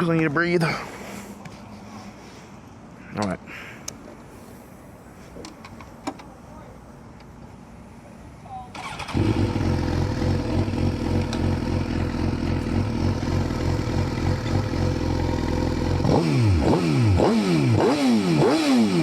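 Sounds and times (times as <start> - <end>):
motorcycle engine idling and revving: 8.8 - 19.0.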